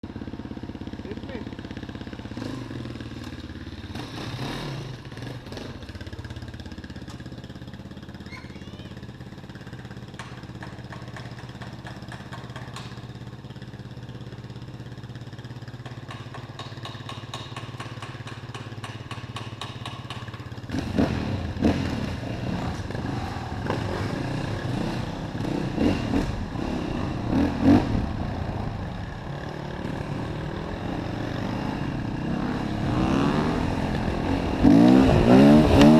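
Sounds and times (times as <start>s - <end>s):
motorcycle engine revving: 0.0s - 35.9s
engine ticking clatter: 5.0s - 30.3s.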